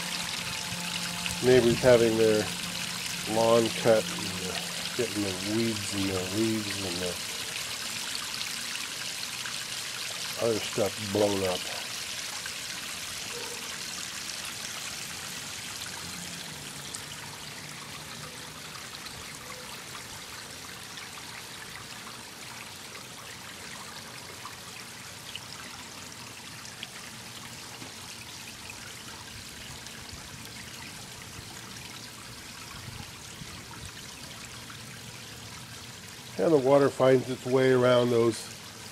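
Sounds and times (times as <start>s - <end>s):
water running over rocks: 0.0s - 38.9s.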